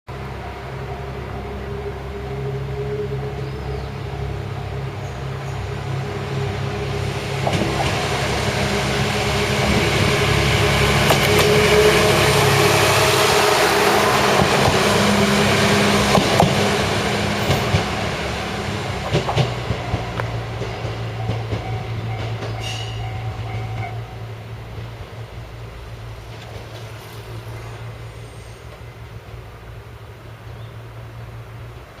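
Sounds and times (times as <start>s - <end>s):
diesel train engine drone: 0.1s - 32.0s
rail noise: 0.1s - 32.0s.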